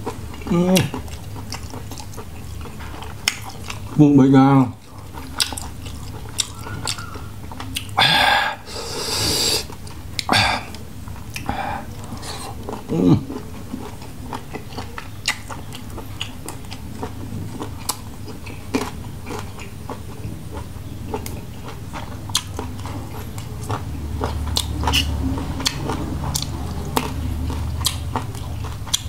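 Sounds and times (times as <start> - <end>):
man chewing with wet mouth clicks: 0.0 - 4.0, 4.7 - 29.0.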